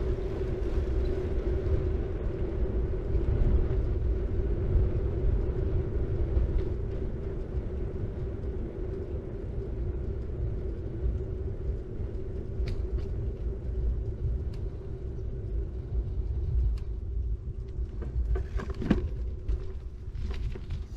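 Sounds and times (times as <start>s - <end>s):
bike tyres rolling on road: 0.0s - 20.9s.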